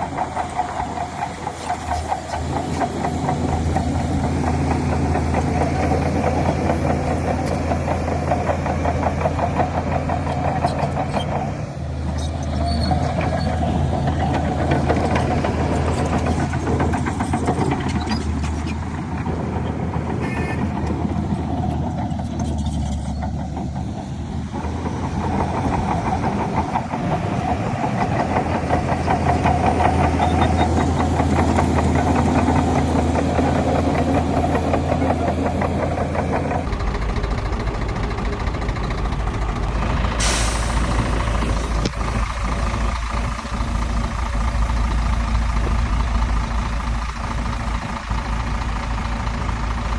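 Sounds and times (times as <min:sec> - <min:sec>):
heavy diesel engine throbbing: 0:00.0 - 0:49.9.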